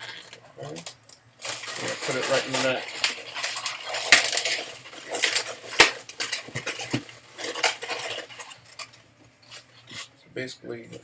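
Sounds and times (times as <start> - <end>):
balloons squeaking and rubbing: 1.4 - 8.8.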